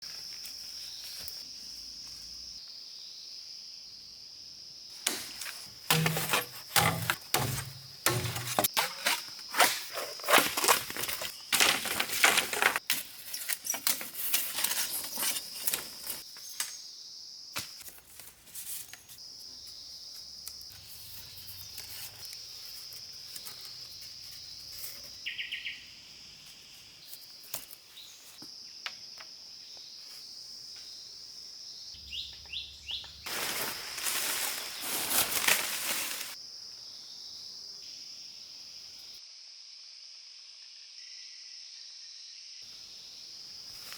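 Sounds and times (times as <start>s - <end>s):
insects droning: 0.0s - 43.9s
loud irregular cracks and rustles: 5.0s - 16.2s, 33.3s - 36.4s.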